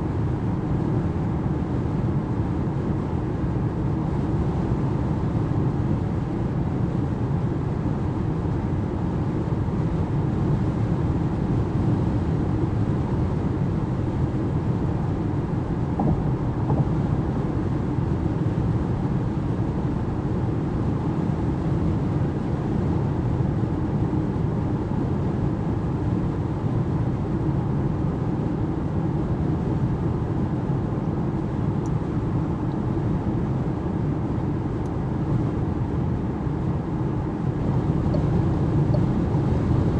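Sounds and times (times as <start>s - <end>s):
car road and wind noise: 0.0s - 39.9s
low tyre rumble: 14.9s - 20.2s.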